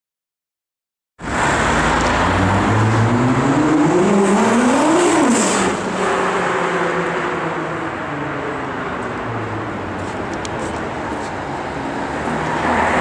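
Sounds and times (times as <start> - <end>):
car engine accelerating hard: 1.2 - 7.9.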